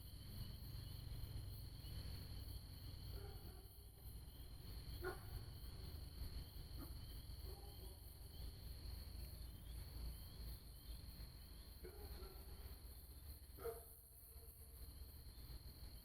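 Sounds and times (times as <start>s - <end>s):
crickets trilling: 0.0s - 16.0s
insect chirps: 0.0s - 16.0s.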